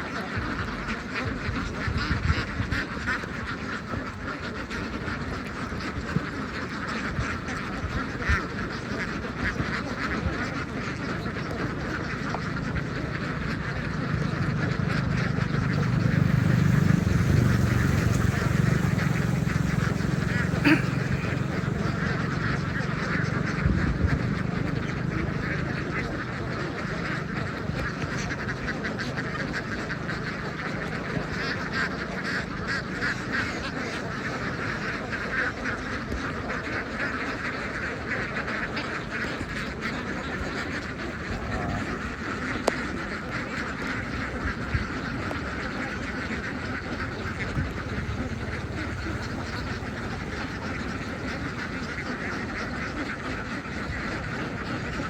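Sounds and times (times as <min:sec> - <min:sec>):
flock of ducks quacking: 0:00.0 - 0:55.0
low hum: 0:11.5 - 0:26.9, 0:46.8 - 0:53.7.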